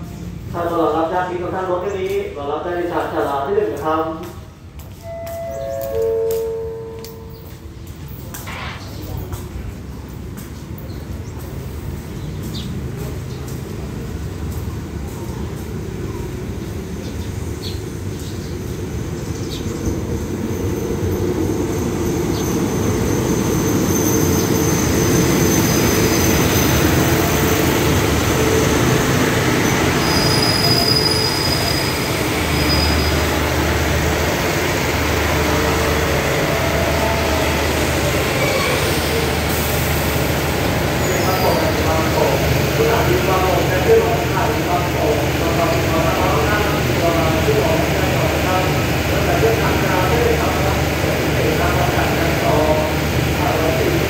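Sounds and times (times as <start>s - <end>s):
train rumble: 0.0s - 54.0s
wheel and brake squeals: 21.7s - 27.3s, 29.6s - 33.3s, 38.2s - 39.2s.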